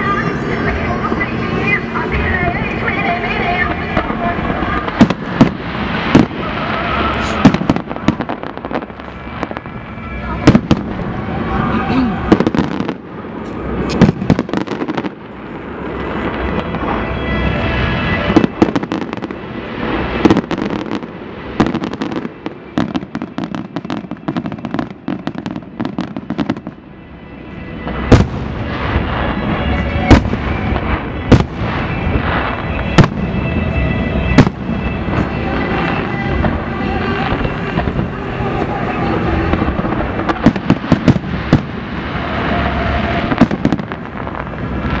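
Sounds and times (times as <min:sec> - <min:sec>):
steady rumble: 0:00.0 - 0:24.3
fireworks bangs and crackling: 0:00.0 - 0:45.0.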